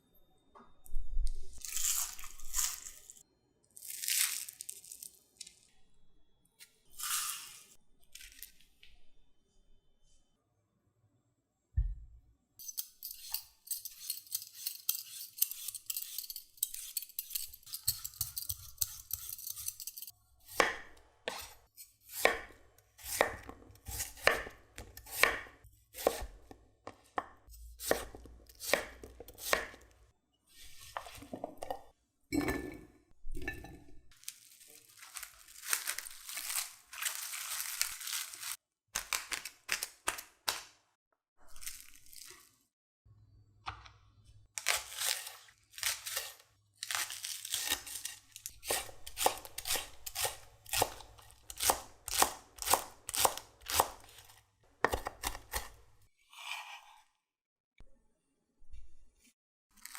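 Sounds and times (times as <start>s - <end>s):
knife cutting potato on board: 12.6s - 29.9s, 44.6s - 57.1s.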